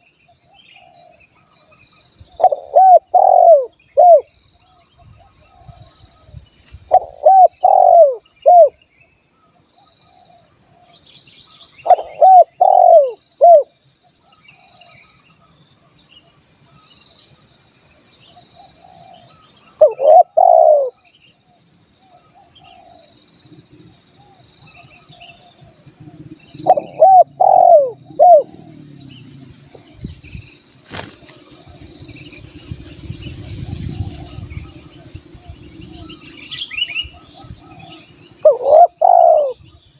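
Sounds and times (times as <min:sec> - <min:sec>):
high insect drone: 0:00.0 - 0:39.9
dove cooing: 0:02.4 - 0:04.3, 0:06.9 - 0:08.8, 0:11.8 - 0:13.7, 0:18.7 - 0:21.0, 0:22.3 - 0:23.1, 0:26.0 - 0:29.9, 0:33.5 - 0:39.7.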